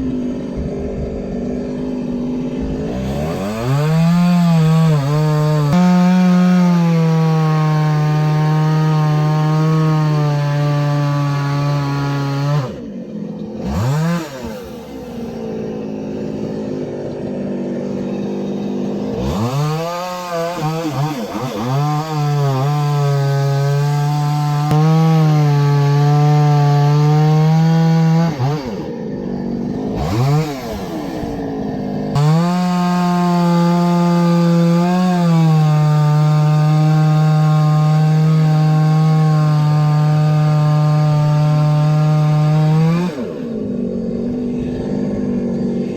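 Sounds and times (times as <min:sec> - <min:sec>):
chainsaw cutting logs: 0:00.0 - 0:45.9.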